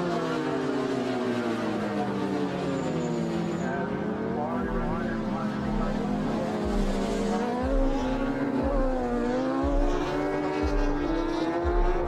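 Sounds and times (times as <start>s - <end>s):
low pulse: 4.6s - 12.0s
racing motorcycle engine accelerating: 4.6s - 12.0s.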